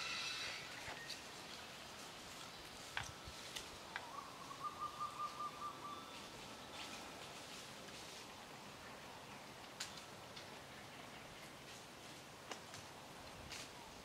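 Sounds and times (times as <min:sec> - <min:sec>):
bird calling repeated notes: 0:04.0 - 0:06.3.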